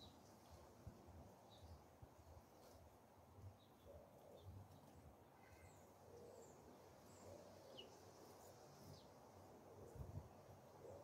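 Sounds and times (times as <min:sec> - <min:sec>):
faint bird chirps: 0:03.6 - 0:09.1.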